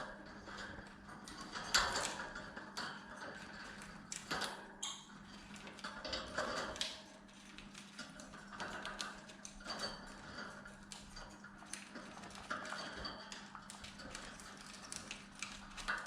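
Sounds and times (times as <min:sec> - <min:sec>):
birds chewing wood: 0:06.8 - 0:16.0.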